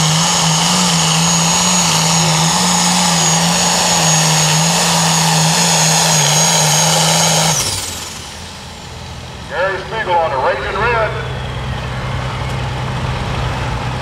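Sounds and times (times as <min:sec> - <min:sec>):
tractor diesel engine under load: 0:00.0 - 0:14.0
high whine: 0:04.8 - 0:14.0.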